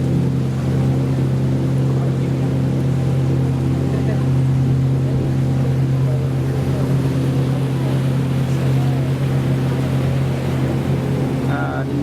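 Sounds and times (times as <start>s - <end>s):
ferry motor droning: 0.0s - 12.0s.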